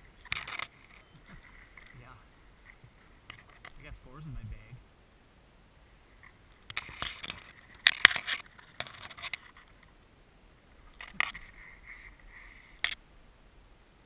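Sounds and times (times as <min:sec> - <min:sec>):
gear rustling and scraping: 0:06.2 - 0:09.9.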